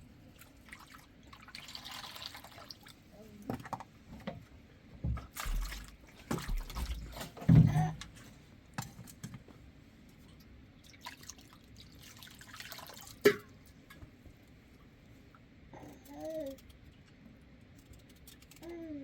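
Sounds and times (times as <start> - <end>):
water drips and splashes: 0.3 - 3.1, 5.2 - 7.9, 10.2 - 14.0
knocks and thumps: 5.0 - 8.2.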